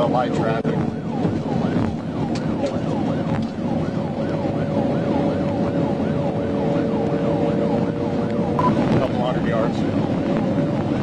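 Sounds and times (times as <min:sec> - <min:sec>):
car engine and road noise: 0:00.0 - 0:11.0
police siren yelp: 0:00.0 - 0:11.0.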